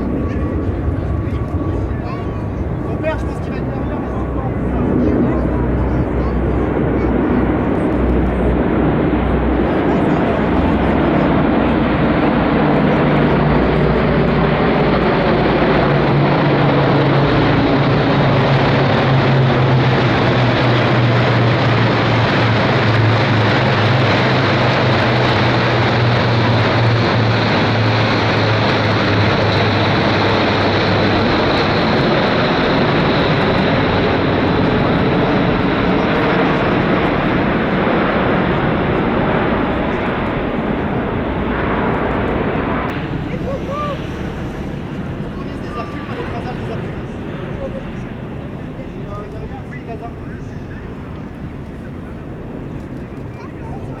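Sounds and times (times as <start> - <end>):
military aircraft engine roar: 0.0 - 54.0.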